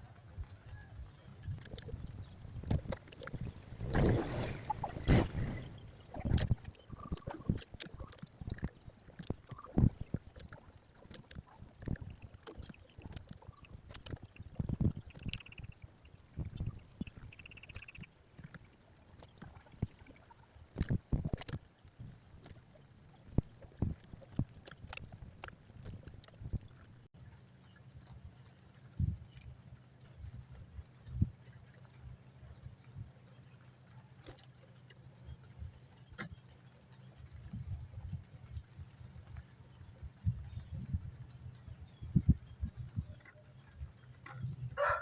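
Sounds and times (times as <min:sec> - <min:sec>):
bird chirps: 0:15.1 - 0:15.8, 0:17.1 - 0:18.1.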